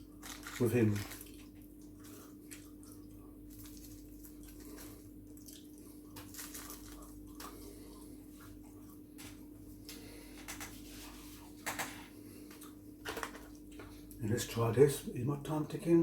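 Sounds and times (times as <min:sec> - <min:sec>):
person chewing: 0:00.0 - 0:11.2.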